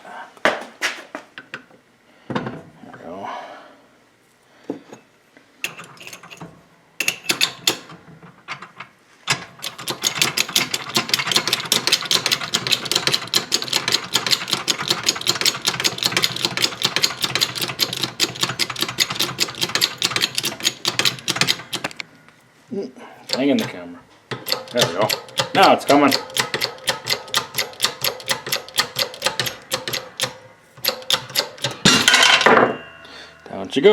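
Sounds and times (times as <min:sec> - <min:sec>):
impact wrench hammering: 0:09.6 - 0:22.0, 0:23.3 - 0:32.9.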